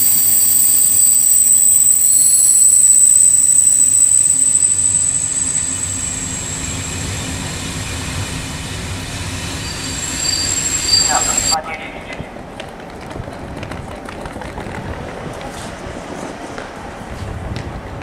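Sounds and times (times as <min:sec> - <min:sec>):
high thin squealing: 0:00.0 - 0:11.6
mechanical rumbling noise: 0:00.0 - 0:11.6.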